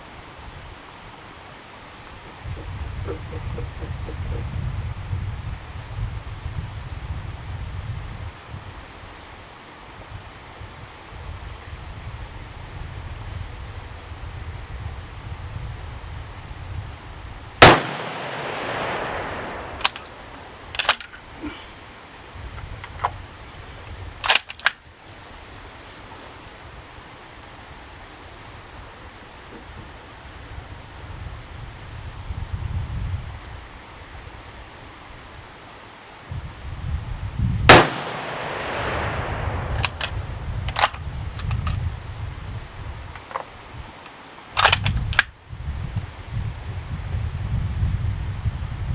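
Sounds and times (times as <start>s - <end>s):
sharp metallic clicks: 2.3s - 4.5s, 17.6s - 21.2s, 37.7s - 41.8s
rifle shot: 17.6s - 21.0s, 37.7s - 40.9s.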